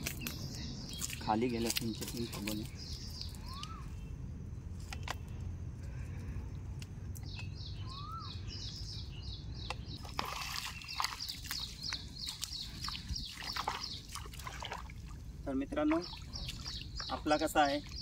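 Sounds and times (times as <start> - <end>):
birds chirping: 0.0 - 18.0
bird whistle: 3.1 - 4.1, 7.6 - 8.8.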